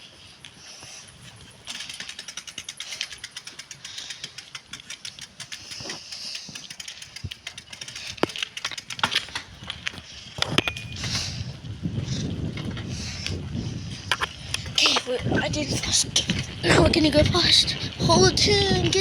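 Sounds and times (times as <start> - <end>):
bicycle clicking and rattling: 0.1 - 19.0
bicycle knocks: 1.6 - 11.4.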